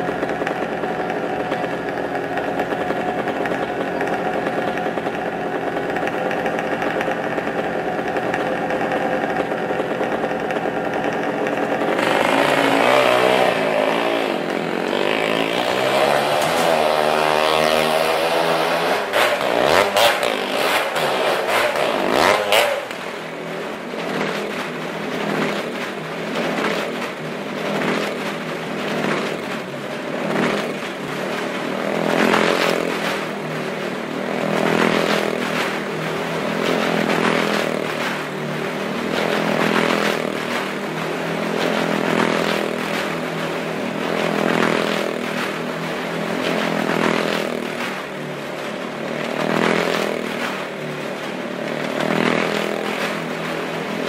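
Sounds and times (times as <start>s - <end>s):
motorcycle engine circling: 0.0s - 54.0s.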